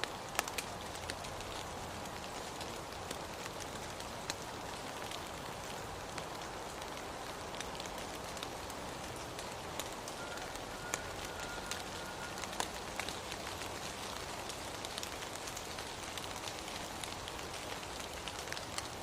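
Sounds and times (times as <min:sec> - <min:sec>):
raindrops ticking nearby: 0:00.0 - 0:19.0
steady rain falling: 0:00.0 - 0:19.0.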